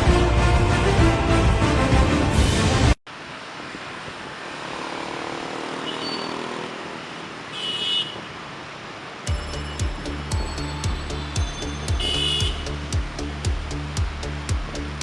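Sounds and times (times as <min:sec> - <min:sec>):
music: 0:00.0 - 0:03.0, 0:09.3 - 0:15.0
passing cars and motorbikes: 0:03.9 - 0:09.3
car horn toot: 0:07.5 - 0:08.2, 0:11.1 - 0:12.7.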